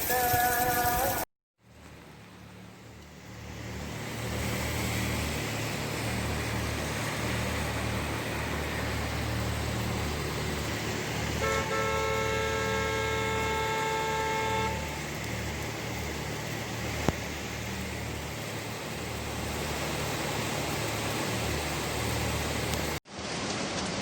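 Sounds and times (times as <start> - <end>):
road noise: 0.0 - 24.0
vehicle engine humming: 0.0 - 24.0
car horn: 11.3 - 15.1.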